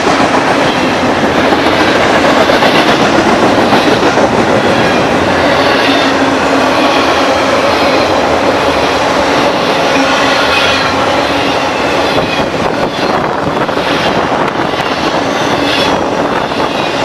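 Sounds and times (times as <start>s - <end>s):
train wheels rushing on rails: 0.0s - 17.0s
high wheel squeal: 3.6s - 17.0s.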